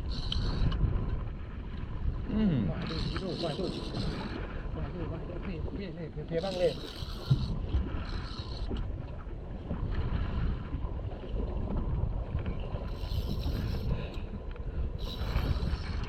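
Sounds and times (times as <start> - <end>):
boat engine rumbling: 0.0 - 16.0
wind and water hissing: 0.0 - 16.0.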